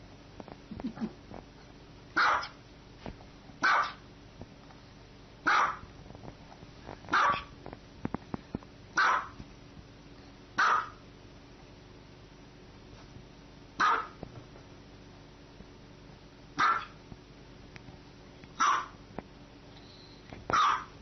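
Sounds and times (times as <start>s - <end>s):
small dog barking: 2.2s - 2.6s, 3.6s - 4.0s, 5.4s - 5.9s, 7.1s - 7.5s, 9.0s - 9.4s, 10.6s - 11.0s, 13.8s - 14.2s, 16.6s - 17.0s, 18.6s - 19.0s, 20.5s - 21.0s.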